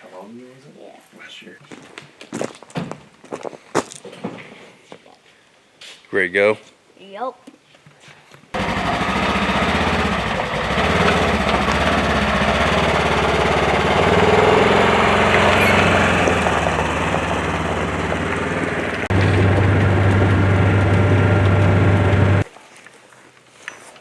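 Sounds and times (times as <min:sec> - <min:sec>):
vehicle engine running: 0:08.6 - 0:22.4.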